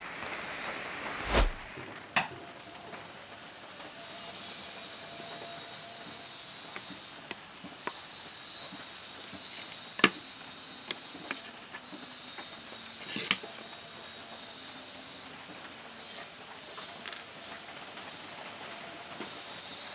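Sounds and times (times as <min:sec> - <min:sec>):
steady hiss: 0:00.0 - 0:02.1.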